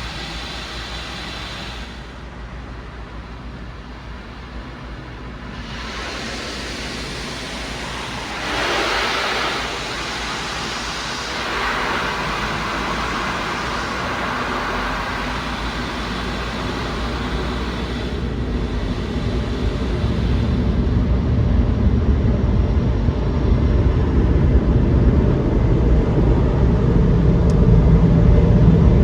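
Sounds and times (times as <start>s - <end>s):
loud hiss: 0.0s - 21.2s
car wash machinery rushing: 0.0s - 21.3s
low rumble: 0.0s - 29.0s.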